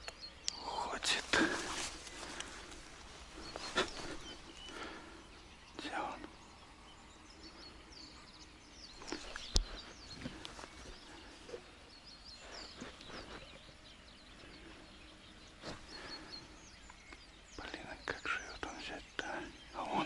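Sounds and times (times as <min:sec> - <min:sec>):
small birds chirping: 0:00.0 - 0:20.0
footsteps through dry grass: 0:00.8 - 0:05.0.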